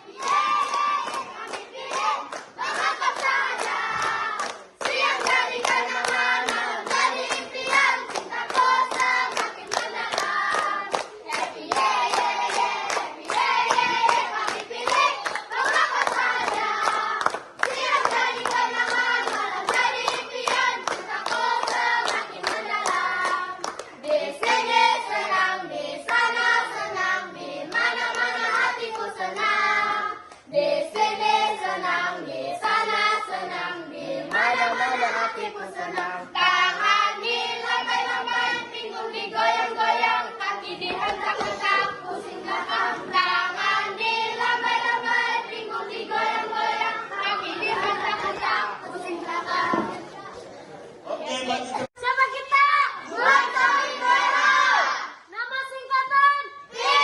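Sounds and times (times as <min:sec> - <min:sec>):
children singing: 0:00.0 - 0:51.6, 0:53.0 - 0:55.2, 0:56.7 - 0:57.0
hands clapping a beat: 0:00.1 - 0:25.4, 0:27.6 - 0:31.8, 0:40.7 - 0:42.3, 0:47.6 - 0:48.6.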